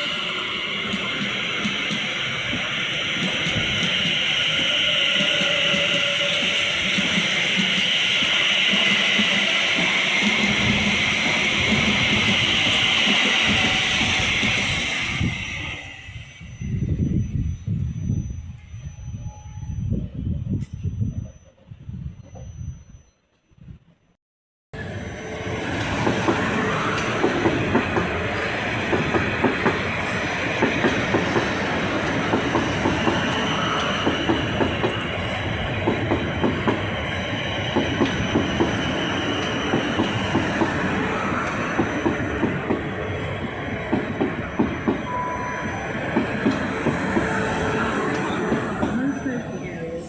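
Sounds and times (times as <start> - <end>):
high wheel squeal: 0.0 - 21.5, 24.8 - 50.0
train wheels clattering over rail joints: 25.8 - 45.1, 46.0 - 49.4.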